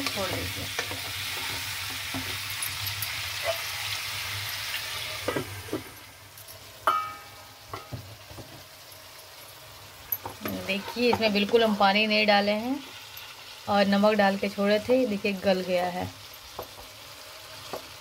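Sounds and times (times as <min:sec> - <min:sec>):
pumpkin sizzling in oil: 0:00.0 - 0:18.0
glass lid clinking on wok: 0:06.8 - 0:08.0
spatula scraping and tapping: 0:10.2 - 0:11.7.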